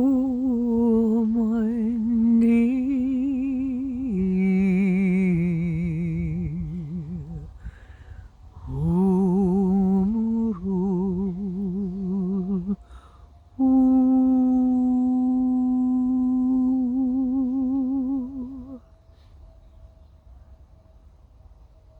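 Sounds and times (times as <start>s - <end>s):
person humming with vibrato: 0.0s - 7.8s, 8.6s - 12.9s, 13.6s - 18.8s
breaths: 7.5s - 8.6s, 12.8s - 13.5s.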